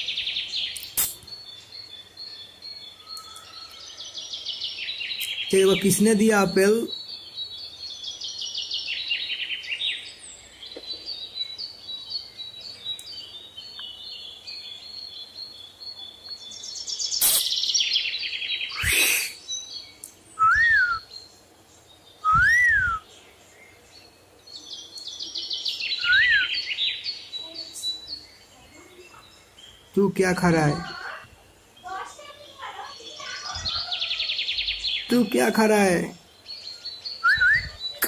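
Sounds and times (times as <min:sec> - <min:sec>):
parrot chattering chirps: 0:17.2 - 0:17.6
parrot whistling: 0:22.2 - 0:23.0, 0:26.0 - 0:26.5, 0:37.2 - 0:37.8.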